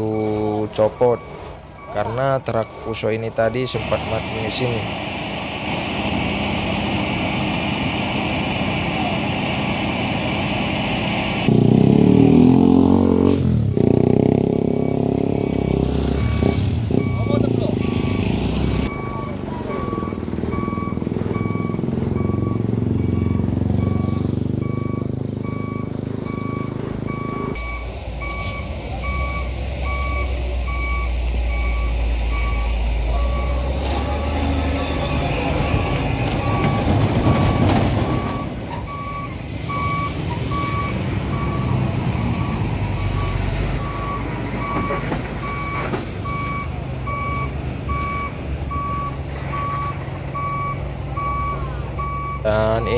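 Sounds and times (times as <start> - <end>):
diesel truck engine running: 0.0 - 52.9
truck reversing alarm beeping: 0.0 - 52.9.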